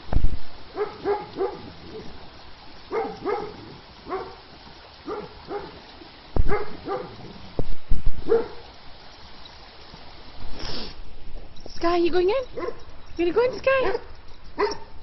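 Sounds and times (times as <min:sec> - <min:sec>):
dog barking: 0:00.7 - 0:02.1, 0:02.9 - 0:04.4, 0:05.0 - 0:05.8, 0:06.4 - 0:07.3, 0:08.2 - 0:08.6, 0:12.5 - 0:12.9, 0:13.5 - 0:15.0.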